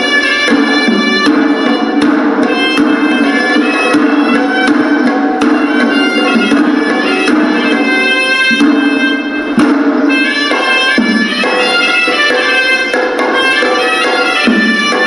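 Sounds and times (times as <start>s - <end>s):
drum strokes: 0.0s - 15.0s
reed pipe melody: 0.0s - 15.0s.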